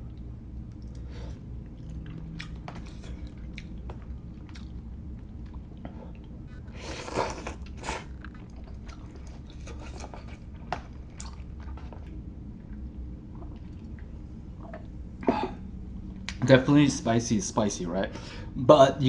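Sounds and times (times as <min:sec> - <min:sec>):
person chewing noodles: 0:00.0 - 0:15.0.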